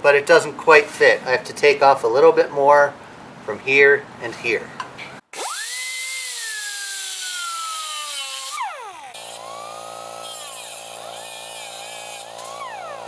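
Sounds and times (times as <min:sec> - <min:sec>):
power tool cutting steel: 0:05.3 - 0:13.0.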